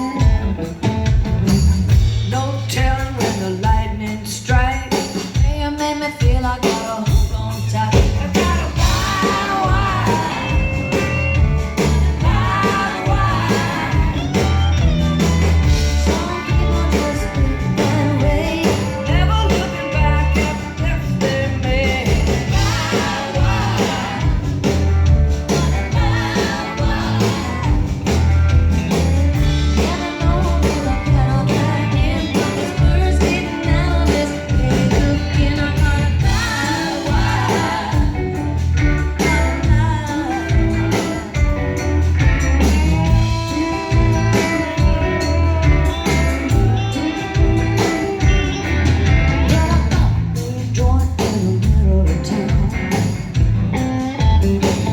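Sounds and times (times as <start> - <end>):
live rock band playing: 0.0 - 54.9
women singing: 6.0 - 11.2, 11.8 - 14.7, 16.0 - 28.0, 29.4 - 38.4.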